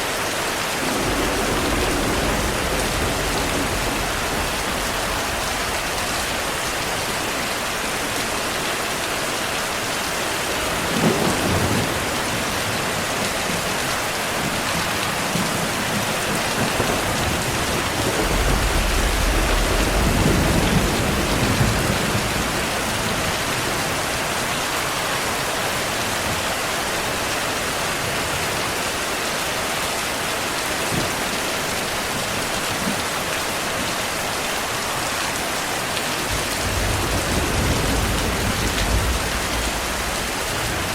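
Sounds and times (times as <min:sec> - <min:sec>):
steady rain falling: 0:00.0 - 0:40.9
thunder clap and rumble: 0:00.7 - 0:08.5, 0:10.3 - 0:24.3, 0:36.2 - 0:40.9.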